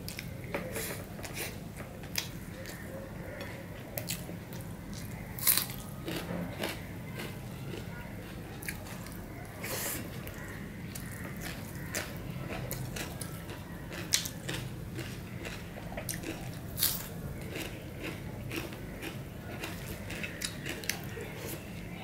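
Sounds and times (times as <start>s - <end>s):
wet chewing of rice: 0.1s - 21.7s
crisp crunchy bites: 5.0s - 8.4s, 13.9s - 21.0s.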